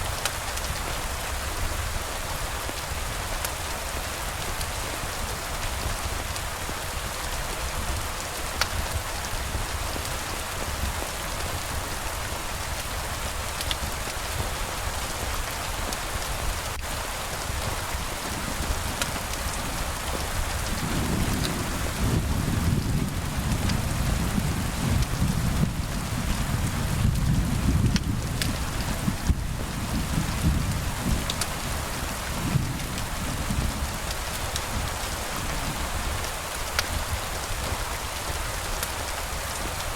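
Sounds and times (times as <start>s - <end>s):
heavy rain hissing: 0.0s - 39.9s
low rumble of thunder: 17.4s - 38.4s.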